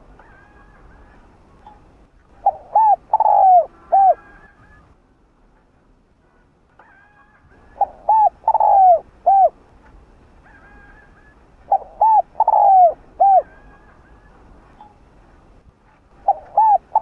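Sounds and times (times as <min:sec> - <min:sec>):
dove cooing: 0:02.3 - 0:04.9, 0:07.6 - 0:09.6, 0:10.5 - 0:14.9, 0:16.1 - 0:17.0.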